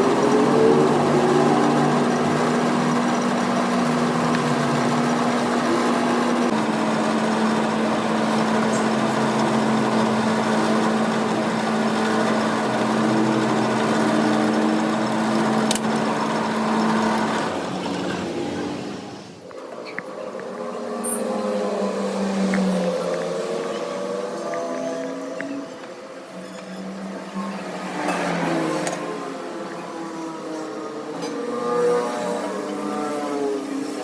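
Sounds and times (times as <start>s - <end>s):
electric machine motor humming: 0.0s - 26.0s.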